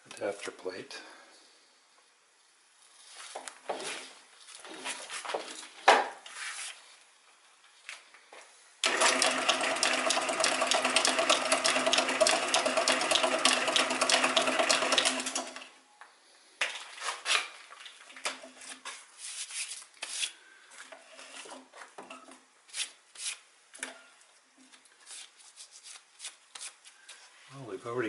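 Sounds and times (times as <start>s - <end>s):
lathe running: 8.8s - 15.6s
tools scraping: 18.6s - 24.0s.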